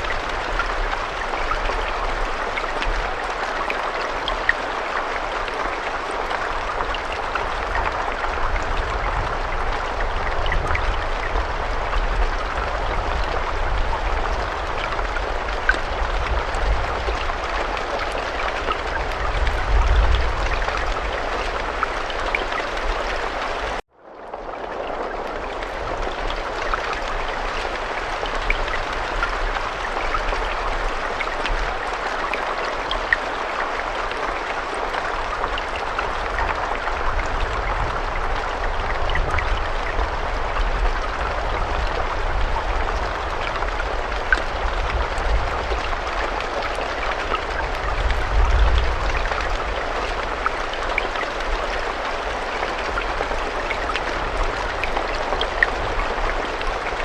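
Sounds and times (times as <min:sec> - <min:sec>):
raindrops ticking: 0:00.0 - 0:57.0.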